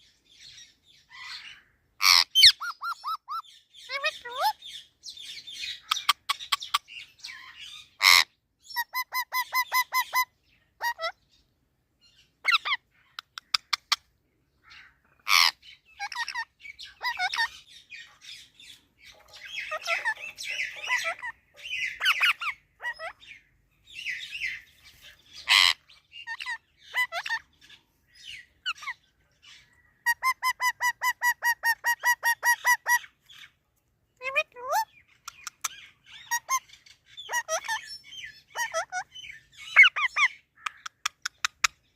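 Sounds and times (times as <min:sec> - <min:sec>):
parakeet calling: 0:00.4 - 0:11.4, 0:12.0 - 0:33.5, 0:34.2 - 0:41.8
parakeet warbling chatter: 0:02.0 - 0:04.6, 0:14.7 - 0:17.7, 0:19.1 - 0:23.3, 0:25.4 - 0:27.5, 0:37.2 - 0:37.9, 0:38.5 - 0:41.7
parakeet screeches: 0:25.4 - 0:27.4.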